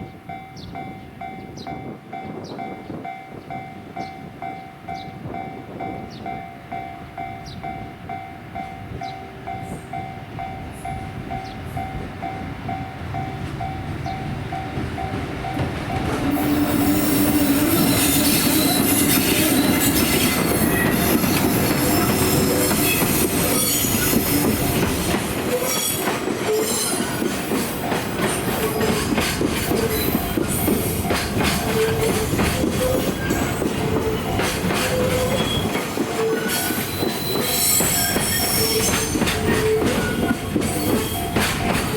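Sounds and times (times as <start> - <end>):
freight train passing: 0.0 - 41.9
wheels clicking over rail joints: 13.2 - 41.9
train wheels squealing: 16.3 - 41.9.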